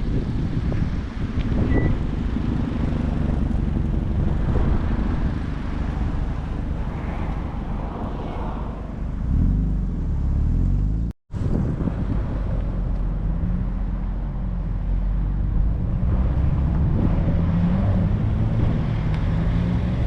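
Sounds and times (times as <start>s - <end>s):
wind buffeting microphone: 0.0s - 10.0s, 11.3s - 20.0s
car engine driving by: 2.2s - 11.1s.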